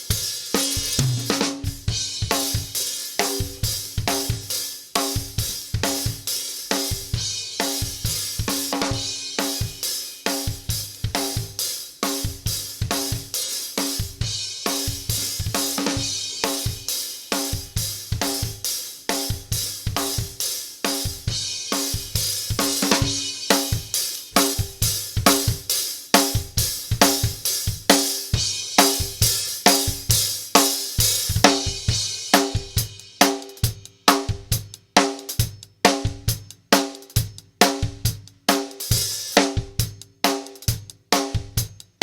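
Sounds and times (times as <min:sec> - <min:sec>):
drum kit playing a beat: 0:00.0 - 0:42.0.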